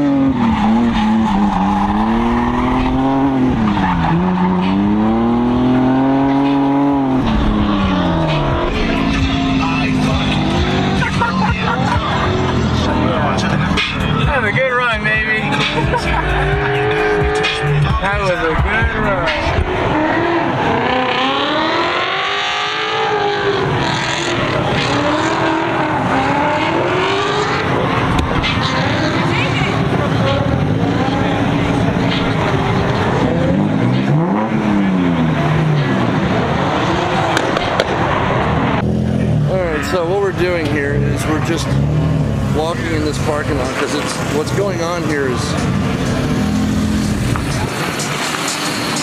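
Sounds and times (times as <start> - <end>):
car engine revving hard: 0.0 - 49.0.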